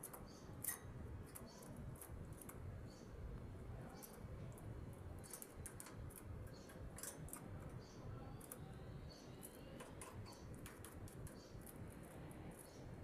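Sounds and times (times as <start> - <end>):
canaries chirping and squeaking: 0.0 - 1.7.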